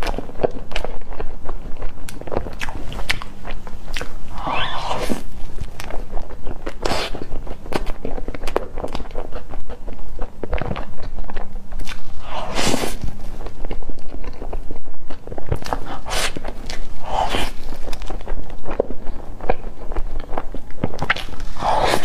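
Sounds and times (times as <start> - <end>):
chewing soft cake: 0.0 - 22.0
hissy mouth sounds: 2.2 - 8.6, 11.8 - 13.8, 15.5 - 22.0.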